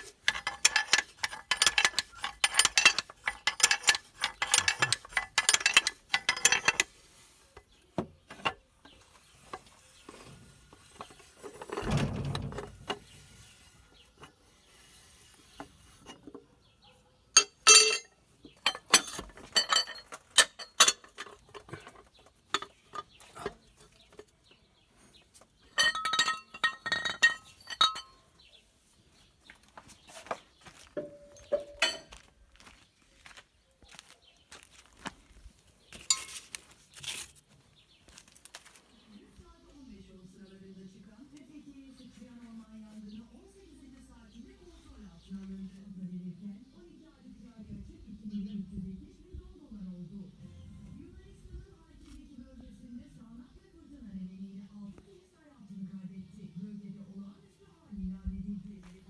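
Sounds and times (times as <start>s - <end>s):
metal parts clinking: 0.0s - 7.0s, 11.0s - 13.3s, 17.4s - 24.3s, 25.6s - 28.2s, 31.0s - 32.2s, 36.0s - 37.3s.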